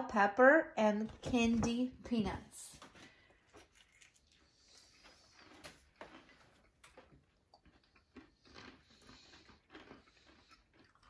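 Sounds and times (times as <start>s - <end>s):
crunchy chewing: 3.2s - 11.0s.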